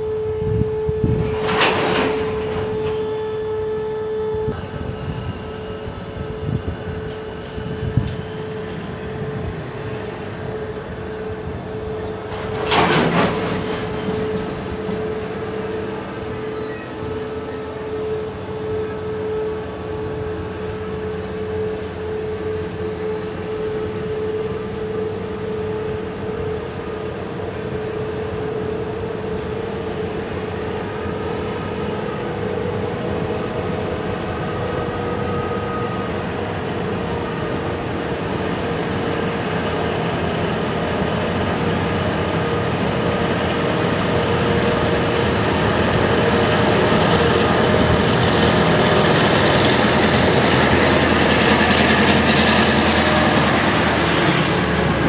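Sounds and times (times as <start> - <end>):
locomotive approaching: 0.0 - 55.0
train wagons rumbling and clattering: 0.0 - 55.0.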